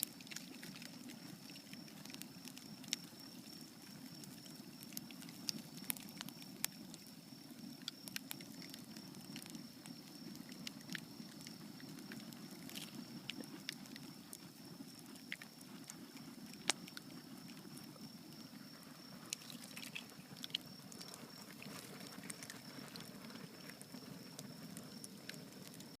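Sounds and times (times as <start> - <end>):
bonfire crackling and popping: 0.0 - 26.0.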